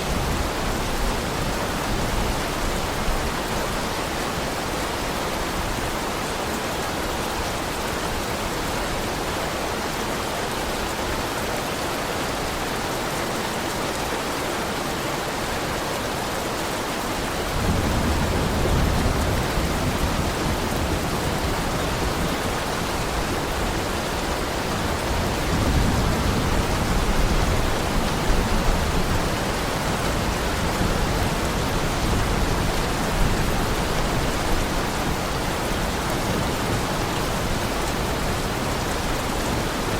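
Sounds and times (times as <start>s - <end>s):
heavy rain falling: 0.0s - 39.9s
thunder rumbling: 17.5s - 38.8s.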